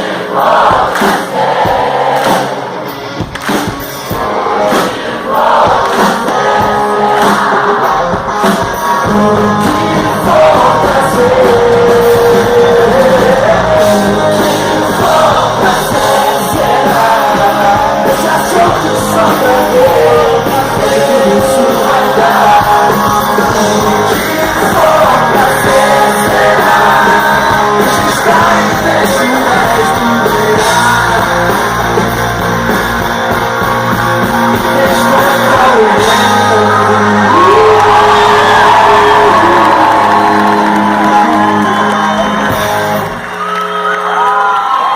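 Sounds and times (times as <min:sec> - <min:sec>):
live rock band playing: 0:00.4 - 0:44.9
person singing: 0:04.1 - 0:43.0.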